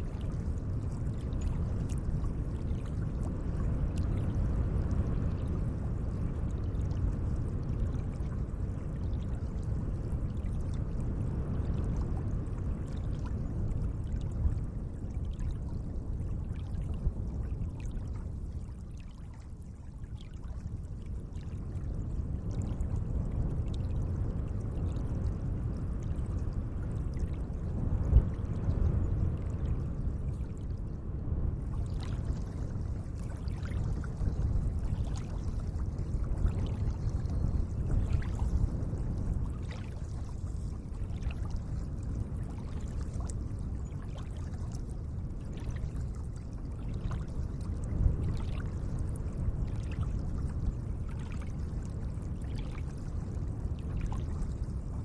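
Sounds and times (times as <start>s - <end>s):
water lapping at lake edge: 0.0s - 5.6s, 9.0s - 11.0s, 11.7s - 24.1s, 27.0s - 28.7s, 31.6s - 55.0s
small water splashes: 16.4s - 21.9s, 31.6s - 49.0s, 49.7s - 50.3s, 51.1s - 54.9s.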